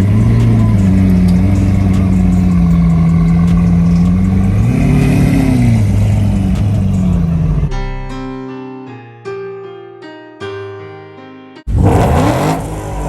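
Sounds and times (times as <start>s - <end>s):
car engine idling and revving: 0.0s - 7.7s, 11.7s - 13.0s.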